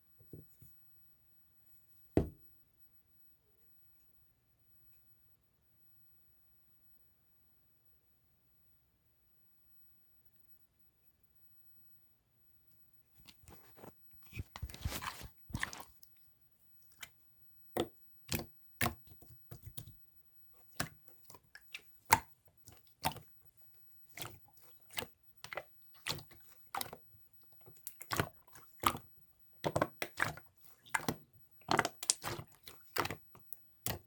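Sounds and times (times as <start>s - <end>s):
slime squeezed wet crackling: 13.2s - 16.1s, 17.8s - 20.0s, 20.6s - 34.0s.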